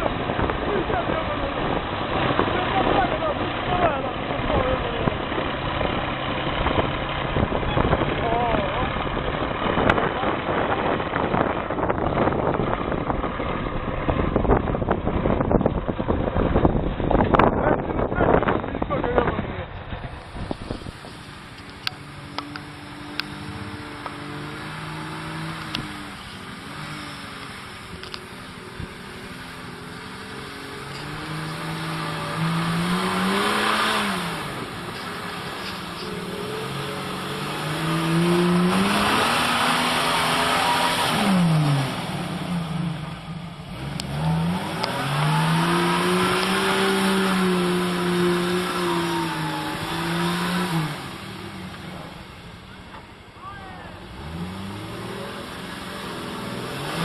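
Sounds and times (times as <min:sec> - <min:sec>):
engine humming: 0:00.0 - 0:57.0.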